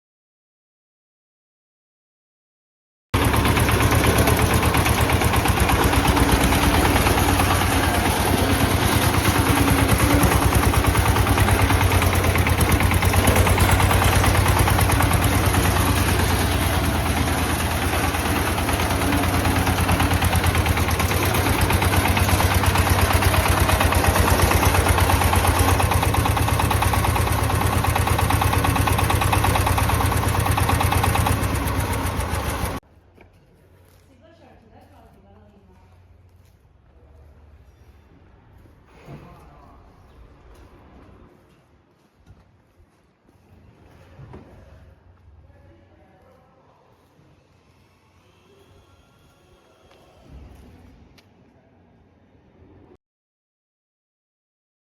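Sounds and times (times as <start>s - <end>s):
tractor engine running: 3.2s - 32.8s.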